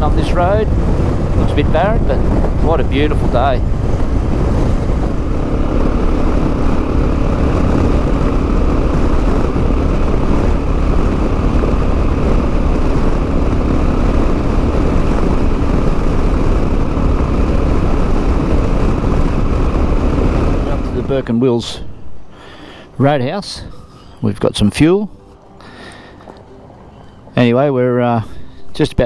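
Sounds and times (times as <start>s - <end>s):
wind rush on microphone: 0.0s - 22.2s
motorcycle engine drone: 0.0s - 24.0s, 25.1s - 27.6s.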